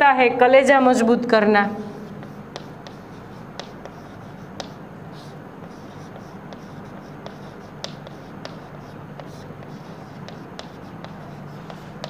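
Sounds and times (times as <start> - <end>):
faint low hum: 0.0 - 12.0
chalk tapping and scratching on blackboard: 2.0 - 12.0.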